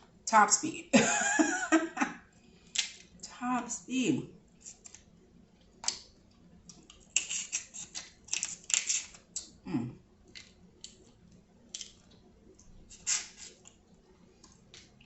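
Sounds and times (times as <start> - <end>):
wet chewing and smacking: 4.7 - 9.6, 10.2 - 15.0.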